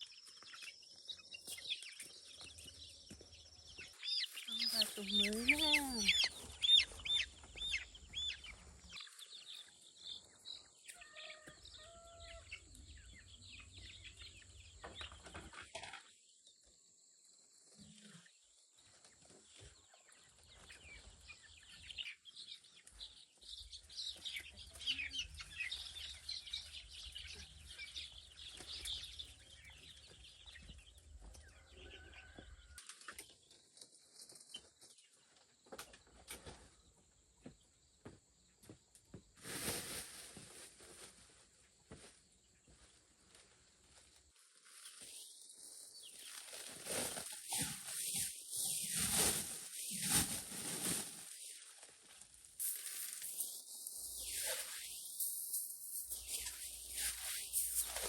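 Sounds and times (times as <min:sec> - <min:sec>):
chickens clucking and peeping: 0:00.2 - 0:15.9, 0:18.0 - 0:35.0
high chirping calls: 0:03.7 - 0:10.6, 0:52.6 - 0:58.0.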